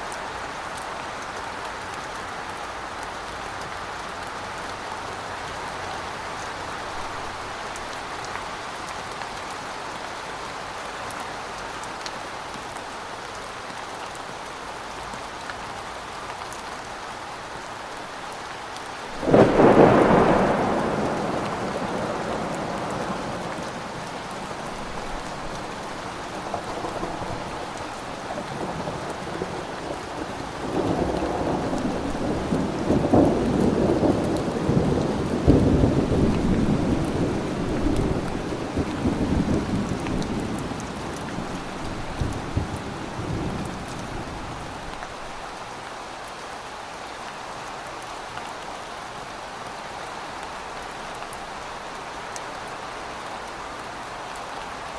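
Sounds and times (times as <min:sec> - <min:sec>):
steady rain falling: 0:00.0 - 0:54.9
thunder rumbling: 0:19.2 - 0:45.3.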